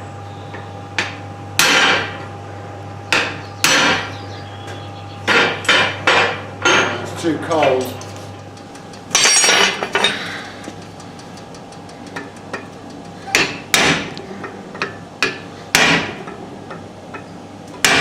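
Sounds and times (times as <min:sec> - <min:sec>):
hammer striking steel: 0:01.6 - 0:02.1, 0:03.1 - 0:04.1, 0:09.0 - 0:10.2, 0:12.0 - 0:16.4.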